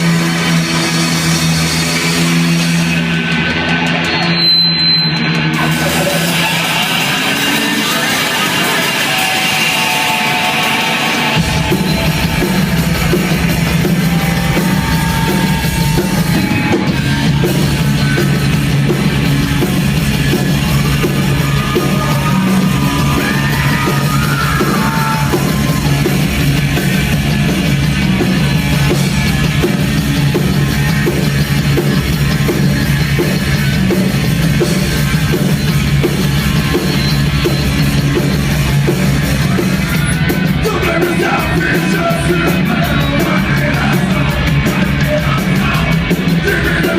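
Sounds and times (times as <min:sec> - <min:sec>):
fast drumming: 0:00.0 - 0:04.4, 0:05.2 - 0:46.9
heavy metal band playing: 0:00.0 - 0:46.9
yelled vocals: 0:05.6 - 0:32.3, 0:39.0 - 0:46.9.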